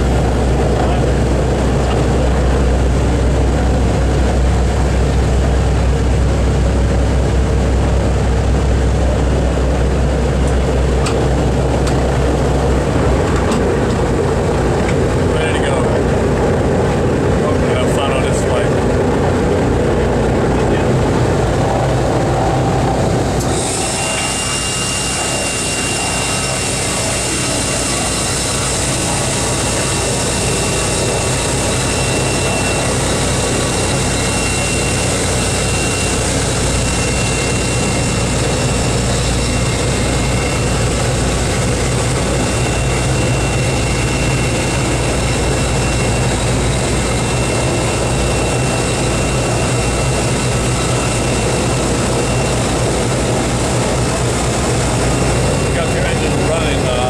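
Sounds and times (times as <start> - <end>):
aircraft engines running: 0.0 - 57.0
high whine and hiss: 20.6 - 57.0.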